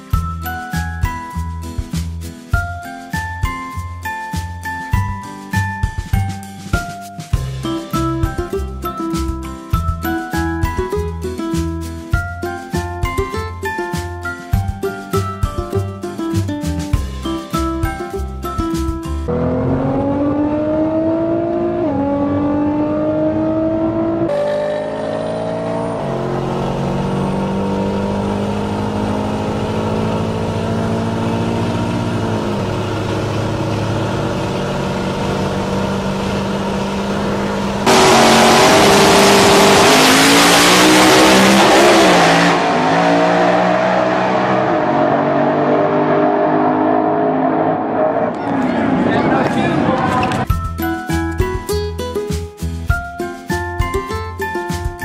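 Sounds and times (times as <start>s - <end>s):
car engine accelerating: 19.3s - 50.5s.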